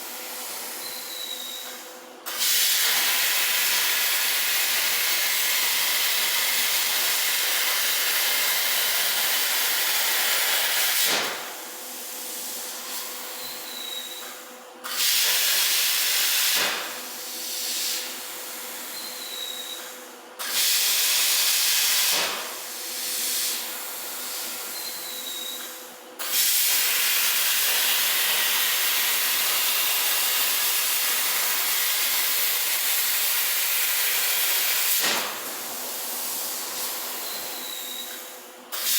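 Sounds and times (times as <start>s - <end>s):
plasma cutter arc hissing: 2.3s - 11.1s, 20.5s - 22.3s, 26.2s - 35.1s.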